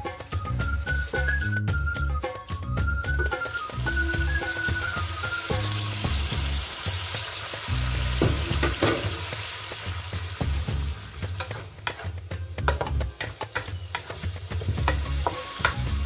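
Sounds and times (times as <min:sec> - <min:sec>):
vegetables sizzling in hot oil: 0:00.0 - 0:01.6, 0:03.1 - 0:16.0
wooden spatula scraping and stirring: 0:11.1 - 0:16.0.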